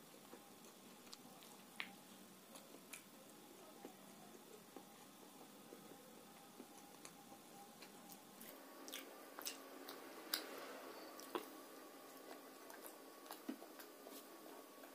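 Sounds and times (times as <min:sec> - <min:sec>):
person chewing food: 0:00.0 - 0:14.9
lip smacks and clicks: 0:00.2 - 0:04.0.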